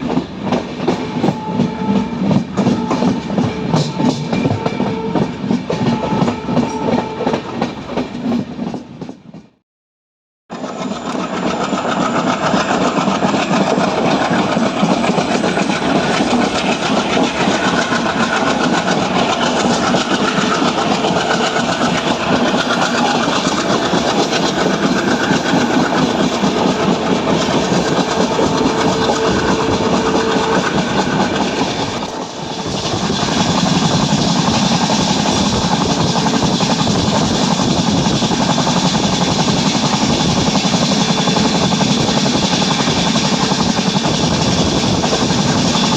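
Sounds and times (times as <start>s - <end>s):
diesel locomotive engine chugging: 10.5s - 45.9s
wheels clattering on rails: 10.5s - 45.9s.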